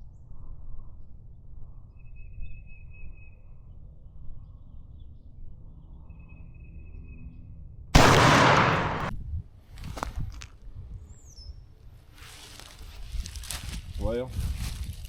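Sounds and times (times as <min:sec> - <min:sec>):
faint bird chirps: 0:01.8 - 0:03.8, 0:04.4 - 0:07.4.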